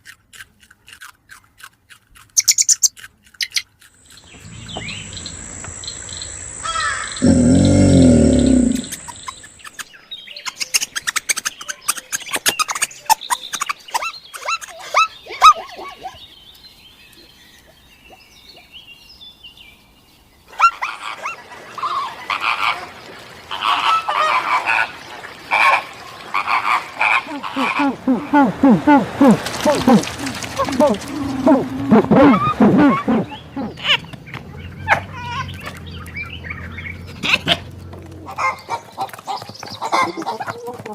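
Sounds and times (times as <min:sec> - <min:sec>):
repeated pitched animal calls: 0:04.1 - 0:09.5, 0:29.0 - 0:34.1
short falling animal calls: 0:04.2 - 0:09.5, 0:27.5 - 0:34.0.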